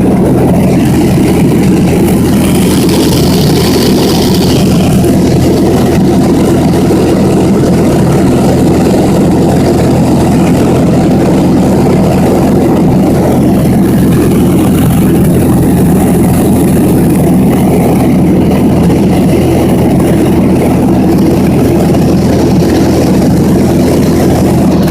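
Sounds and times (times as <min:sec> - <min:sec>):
airplane engine droning in cabin: 0:00.0 - 0:24.9.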